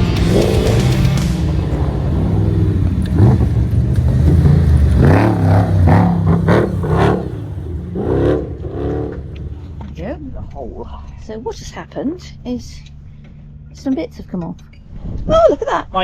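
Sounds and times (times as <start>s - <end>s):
indistinct voices: 0.0s - 13.0s
car engine revving: 0.0s - 15.2s.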